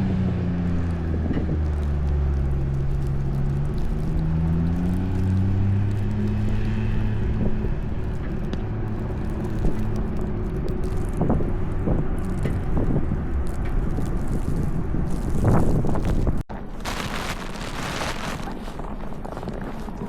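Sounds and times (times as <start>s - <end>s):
vehicle engine hum: 0.0s - 16.4s
street traffic: 0.0s - 18.4s
wind buffeting microphone: 5.2s - 20.0s.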